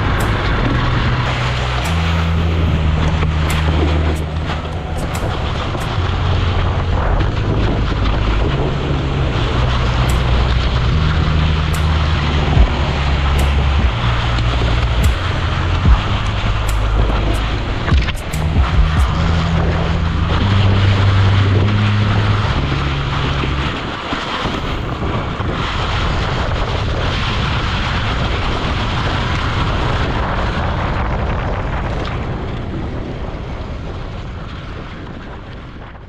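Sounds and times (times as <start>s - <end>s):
low humming notes changing pitch: 0.0s - 25.8s
motorcycle riding: 0.0s - 30.7s
wind rushing over microphone: 0.0s - 36.0s.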